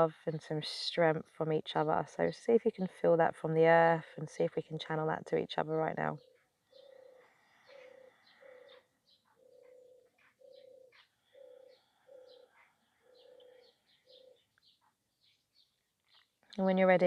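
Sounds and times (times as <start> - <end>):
small birds chirping: 0.0 - 17.0
dove cooing: 6.2 - 14.5.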